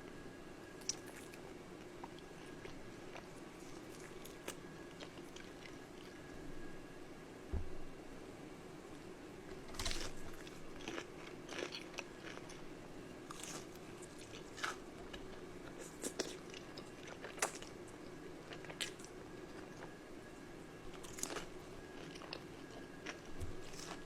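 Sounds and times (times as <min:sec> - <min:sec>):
crunchy bites and chewing: 0:09.5 - 0:12.6, 0:13.2 - 0:17.8, 0:20.9 - 0:24.0.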